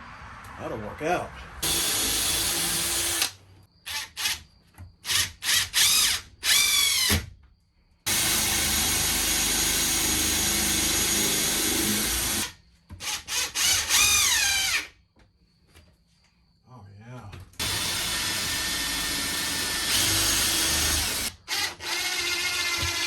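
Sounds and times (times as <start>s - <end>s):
power drill whirring: 1.6s - 4.4s, 5.0s - 7.3s, 8.1s - 14.9s, 17.6s - 23.0s.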